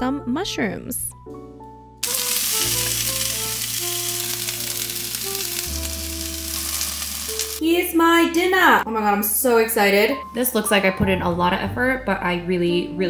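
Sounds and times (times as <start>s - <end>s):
soft background music: 0.0s - 13.0s
vegetables sizzling in a pan: 2.0s - 7.6s.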